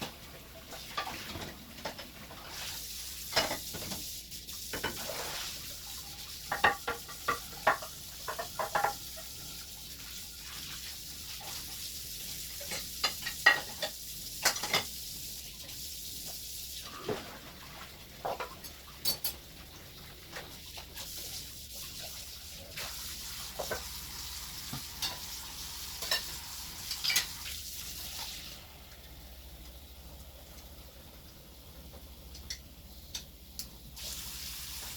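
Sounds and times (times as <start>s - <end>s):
dishes and utensils clinking: 6.5s - 9.2s, 12.6s - 14.9s, 18.2s - 19.5s, 24.8s - 25.3s, 26.0s - 27.4s
steady hiss: 20.9s - 34.9s.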